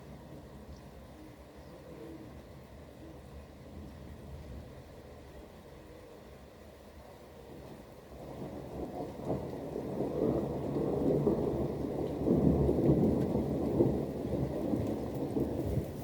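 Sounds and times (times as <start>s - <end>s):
rain falling: 0.0s - 16.0s
thunder rumbling: 8.2s - 16.0s.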